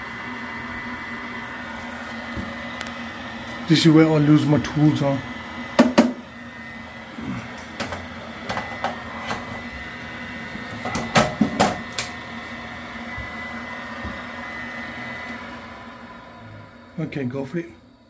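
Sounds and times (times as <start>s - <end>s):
faint high whine: 0.0s - 18.0s
steady hum: 0.0s - 18.0s.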